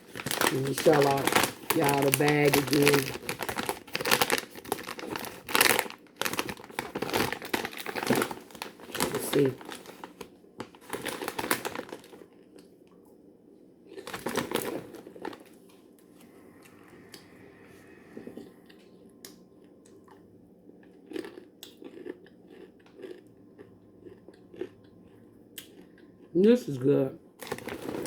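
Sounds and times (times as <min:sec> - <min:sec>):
snack bag crinkling: 0:00.0 - 0:12.7, 0:13.9 - 0:15.6, 0:27.4 - 0:28.0
popcorn being chewed: 0:00.0 - 0:13.1, 0:13.8 - 0:17.5, 0:18.2 - 0:26.8, 0:27.4 - 0:28.0.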